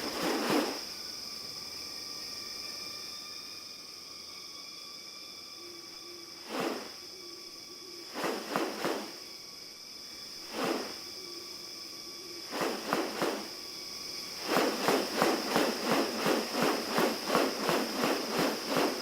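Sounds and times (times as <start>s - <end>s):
rustling swishes: 0.0s - 0.8s, 6.4s - 7.0s, 8.1s - 9.2s, 10.5s - 11.0s, 12.5s - 13.6s, 14.2s - 19.0s
high-pitched insect drone: 0.0s - 19.0s.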